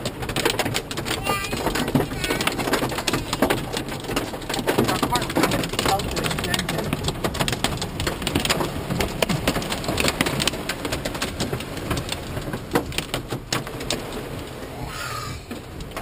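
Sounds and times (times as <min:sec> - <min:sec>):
heavy rain on car roof: 0:00.0 - 0:16.0.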